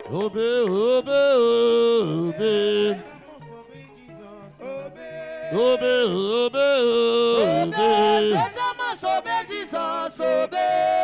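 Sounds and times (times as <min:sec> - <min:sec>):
person singing a chant: 0:00.0 - 0:11.0.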